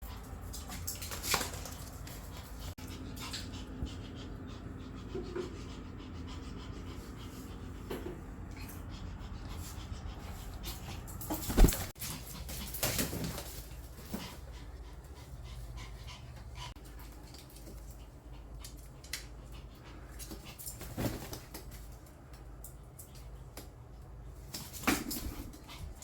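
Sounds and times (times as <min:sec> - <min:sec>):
dog panting: 0:01.4 - 0:20.6.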